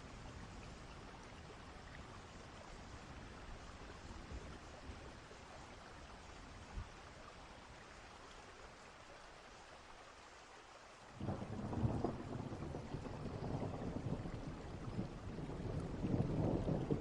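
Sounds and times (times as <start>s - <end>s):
steady rain falling: 0.0s - 17.0s
distant thunder rumbling: 11.2s - 17.0s.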